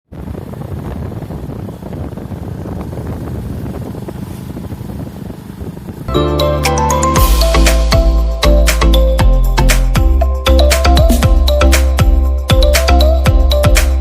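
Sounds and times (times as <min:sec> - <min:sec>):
steady low rumbling: 0:00.1 - 0:13.6
music: 0:06.1 - 0:14.0.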